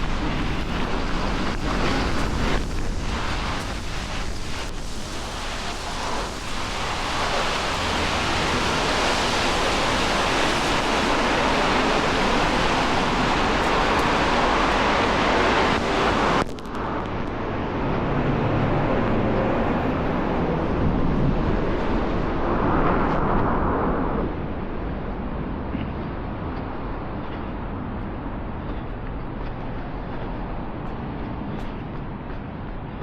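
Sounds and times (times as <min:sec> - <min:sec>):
rain on wet street: 0:00.0 - 0:20.6
wind on microphone: 0:00.0 - 0:33.0.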